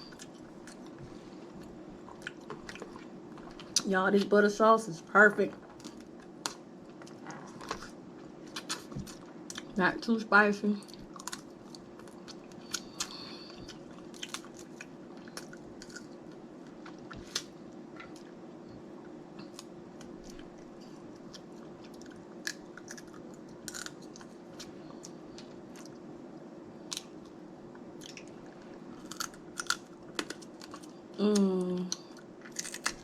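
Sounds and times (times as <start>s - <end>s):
crab shell cracking: 11.0s - 16.2s, 21.2s - 24.7s, 29.0s - 30.9s, 31.9s - 33.0s.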